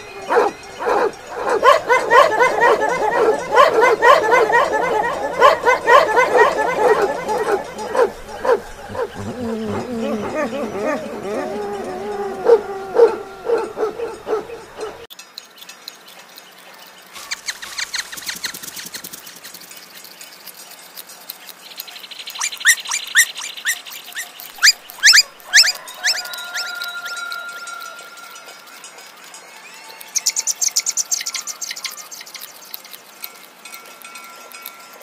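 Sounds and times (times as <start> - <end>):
buzzy bird trill: 0.0 - 15.0, 15.6 - 33.4
puppy whining and yipping: 0.0 - 15.1, 22.4 - 28.0
small birds chirping: 0.0 - 29.3, 30.0 - 33.5.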